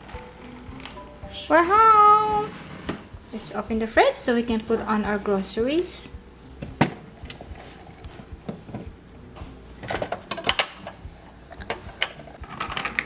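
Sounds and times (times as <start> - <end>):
plastic toys clicking and tapping: 0.0 - 1.0, 5.9 - 13.0.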